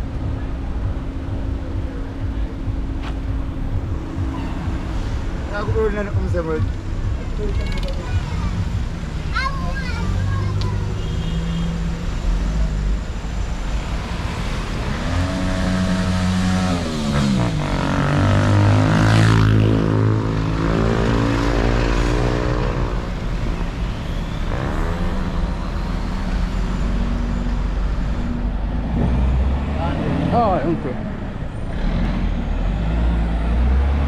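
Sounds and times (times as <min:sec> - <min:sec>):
steady low rumble: 0:00.0 - 0:09.3
vehicles passing close by: 0:00.0 - 0:34.0.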